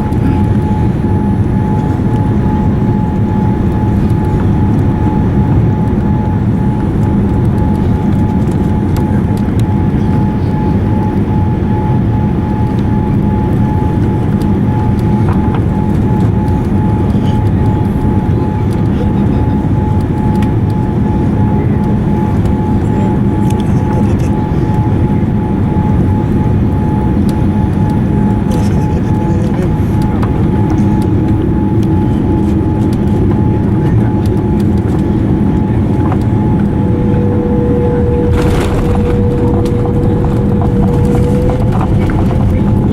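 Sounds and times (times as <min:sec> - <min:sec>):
airliner cabin engine rumble: 0:00.0 - 0:42.9
thin steady whine: 0:00.0 - 0:42.9.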